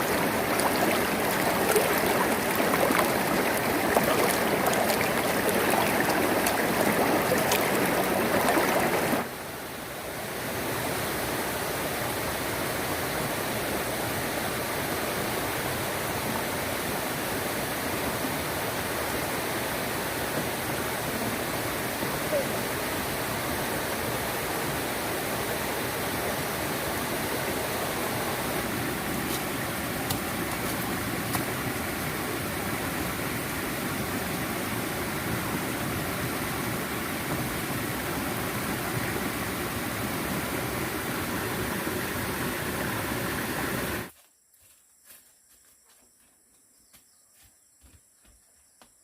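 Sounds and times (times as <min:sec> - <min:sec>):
running water rushing: 0:00.0 - 0:11.3, 0:18.8 - 0:44.1.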